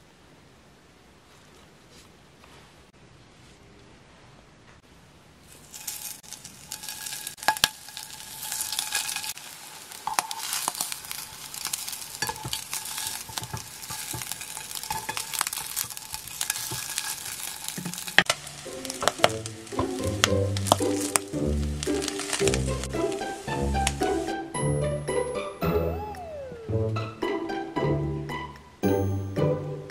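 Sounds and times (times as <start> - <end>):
food sizzling in oil: 5.5 - 24.5.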